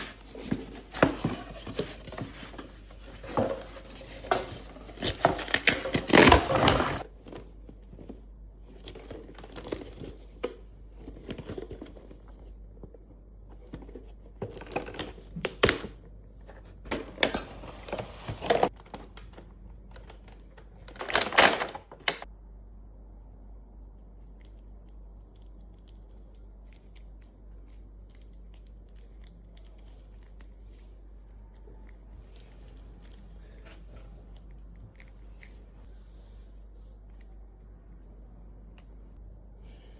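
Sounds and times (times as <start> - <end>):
low room hum: 0.0 - 39.9
packaging tearing and crinkling: 3.8 - 7.1.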